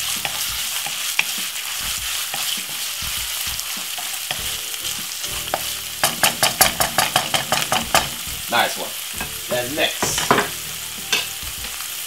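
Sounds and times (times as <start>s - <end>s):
fish sizzling in hot oil: 0.0s - 12.0s
wooden spoon scraping and knocking: 0.1s - 4.4s.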